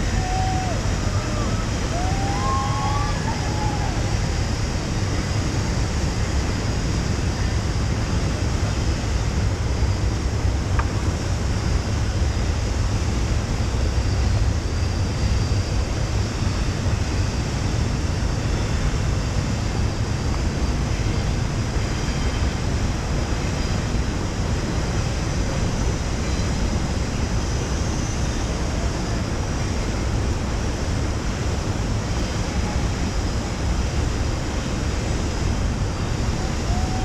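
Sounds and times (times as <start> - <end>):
whitewater roaring through rapids: 0.0 - 9.4, 20.4 - 37.0.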